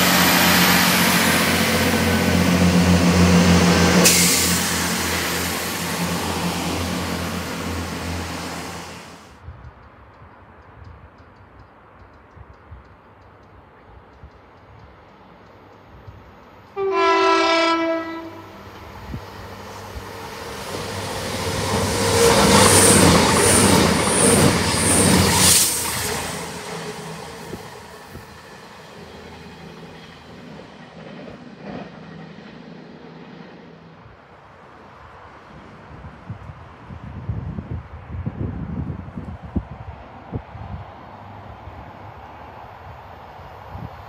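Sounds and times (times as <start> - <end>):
train rumbling past: 0.0 - 9.4, 13.7 - 44.0
two-tone train horn: 16.8 - 18.7.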